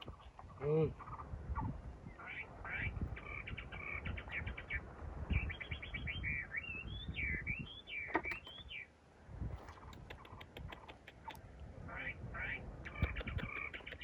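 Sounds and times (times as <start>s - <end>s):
songbird singing: 0.0s - 14.0s.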